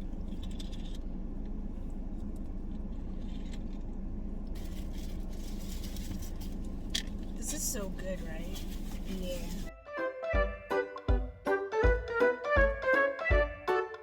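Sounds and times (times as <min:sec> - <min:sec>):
car idling with air conditioning: 0:00.0 - 0:09.7
food handling clicks and scrapes: 0:00.0 - 0:09.7.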